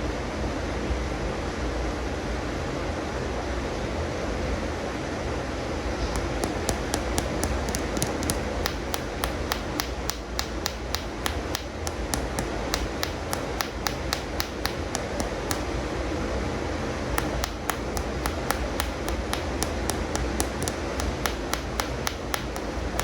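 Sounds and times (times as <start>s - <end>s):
light tapping on toy figures: 6.2s - 15.8s, 17.2s - 23.0s.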